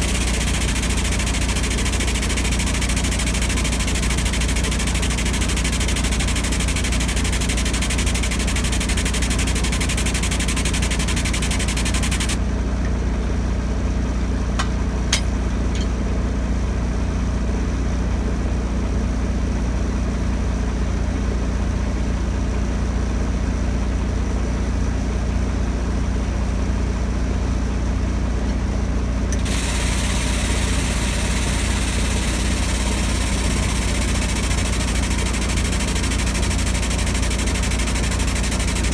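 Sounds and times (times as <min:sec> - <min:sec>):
large diesel engine idling: 0:29.4 - 0:38.9.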